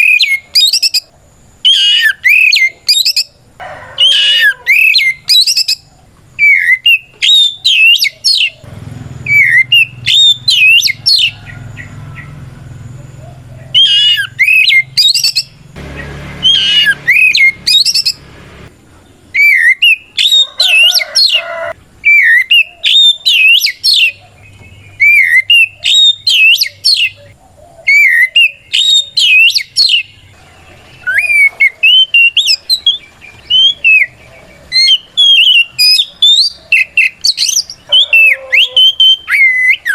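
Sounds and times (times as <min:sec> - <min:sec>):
bird singing whistled phrases: 0:00.0 - 0:03.4, 0:04.0 - 0:08.6, 0:09.2 - 0:12.3, 0:13.7 - 0:18.2, 0:19.3 - 0:21.0, 0:22.0 - 0:30.2, 0:31.0 - 0:39.9.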